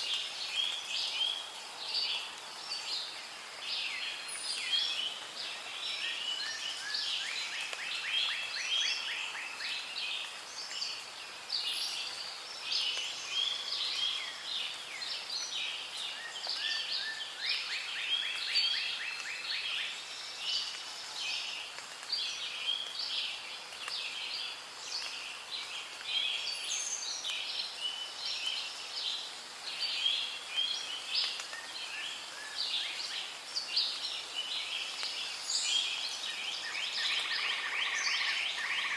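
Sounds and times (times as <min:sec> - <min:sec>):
birds calling and chirping: 0:11.6 - 0:38.9.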